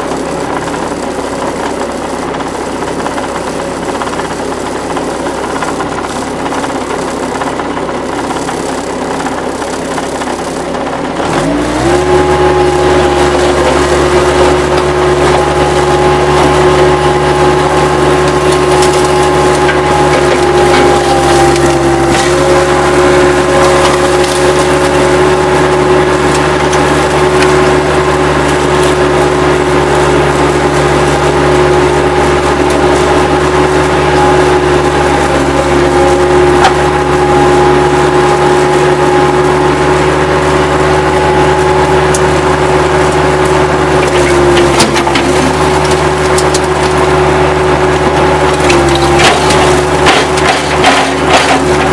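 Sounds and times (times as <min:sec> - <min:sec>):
wood cracking and splintering: 0:00.0 - 0:31.4, 0:43.2 - 0:51.9
diesel engine revving: 0:00.0 - 0:51.9
wood snapping: 0:48.5 - 0:51.9.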